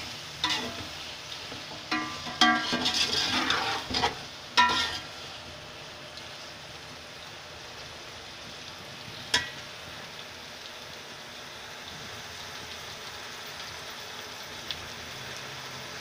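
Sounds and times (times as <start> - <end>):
food frying in oil: 0.0 - 16.0
metal spoon scraping a pot: 0.4 - 0.8, 1.9 - 5.1.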